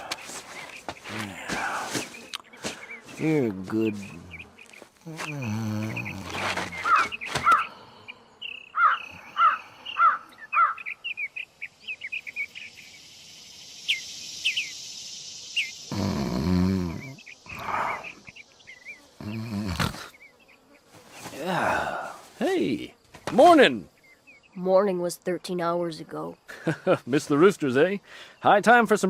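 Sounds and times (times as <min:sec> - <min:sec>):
bird call: 0:00.0 - 0:13.0, 0:13.8 - 0:16.1
insect buzz: 0:00.0 - 0:29.0
high chirps: 0:08.4 - 0:16.1.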